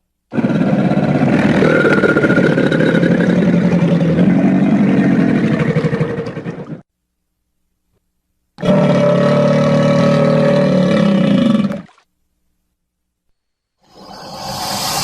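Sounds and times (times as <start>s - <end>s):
crocodile growl: 0.3s - 6.8s, 8.6s - 11.9s.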